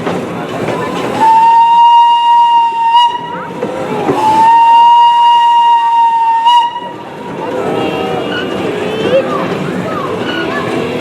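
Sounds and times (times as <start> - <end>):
miniature train whistle blasts: 1.2 - 3.4, 4.2 - 7.0.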